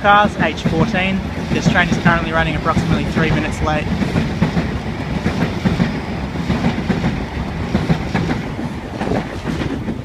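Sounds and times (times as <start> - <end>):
electric train rumbling past: 0.0 - 10.0.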